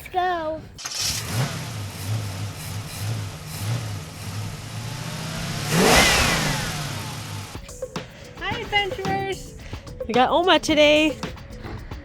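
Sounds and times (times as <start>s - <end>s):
vehicle engine humming: 0.8s - 7.6s
vehicle passing by: 1.0s - 7.6s.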